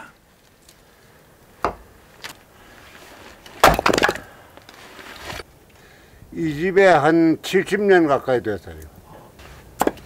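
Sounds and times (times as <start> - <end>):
axe striking a log: 1.6 - 1.9, 3.6 - 4.3, 9.8 - 10.0
wood clattering: 3.3 - 5.4.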